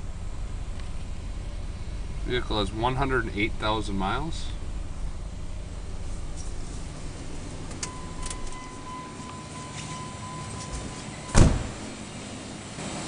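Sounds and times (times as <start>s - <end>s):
low steady rumble: 0.0s - 13.0s
vehicle door shutting: 6.3s - 12.2s.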